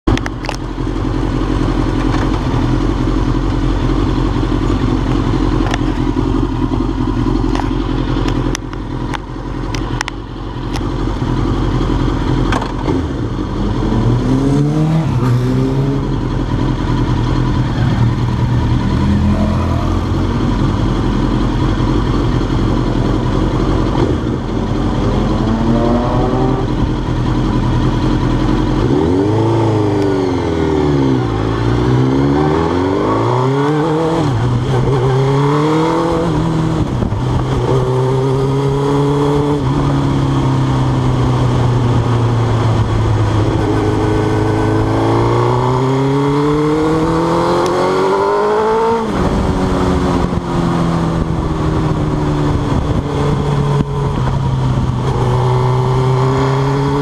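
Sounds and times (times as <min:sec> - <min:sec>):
motorcycle engine idling: 0:00.1 - 0:13.8, 0:16.0 - 0:25.5, 0:26.5 - 0:28.9.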